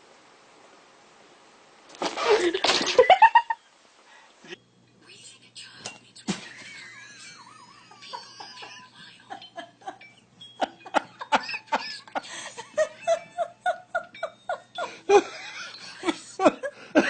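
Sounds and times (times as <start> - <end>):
person laughing: 2.2 - 3.6, 6.3 - 10.0, 10.6 - 17.0.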